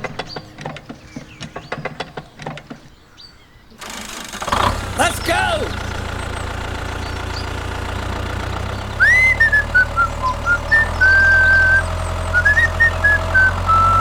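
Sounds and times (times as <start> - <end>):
engine idling hum: 3.8 - 14.0
person whistling a tune: 9.0 - 11.8, 12.4 - 14.0.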